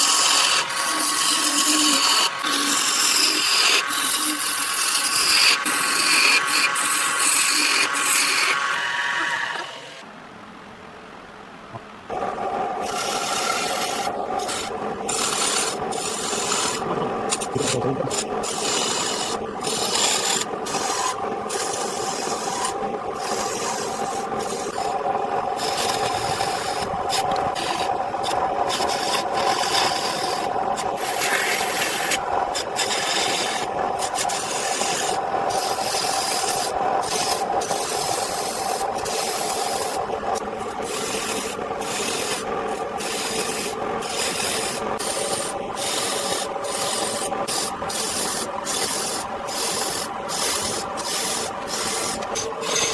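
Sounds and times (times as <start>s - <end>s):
power tool sanding wood: 0.0s - 9.9s, 12.9s - 25.0s, 25.6s - 52.9s.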